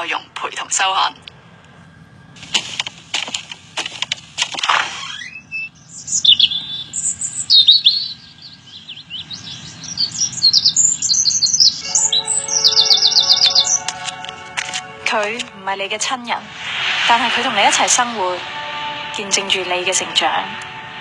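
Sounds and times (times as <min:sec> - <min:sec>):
small birds chirping: 0:01.1 - 0:13.9
music with steady tones: 0:11.6 - 0:16.3
swishes of noise: 0:16.0 - 0:21.0.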